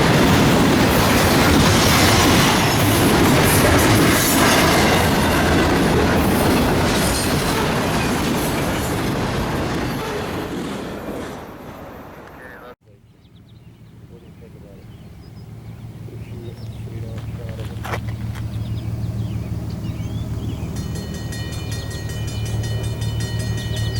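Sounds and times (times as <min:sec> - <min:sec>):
train wheels clattering over rail joints: 0:00.0 - 0:12.4, 0:17.2 - 0:23.9.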